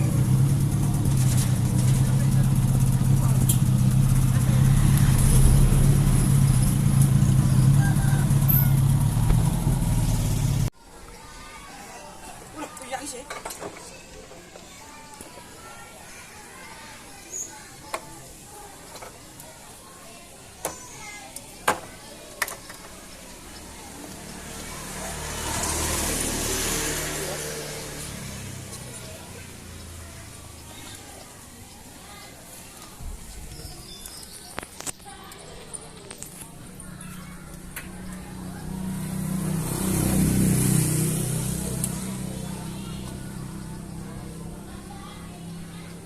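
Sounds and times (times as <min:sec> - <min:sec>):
engine droning: 0:00.0 - 0:10.7, 0:23.6 - 0:30.7
vehicle passing: 0:00.0 - 0:10.7, 0:23.4 - 0:31.2, 0:36.6 - 0:46.0.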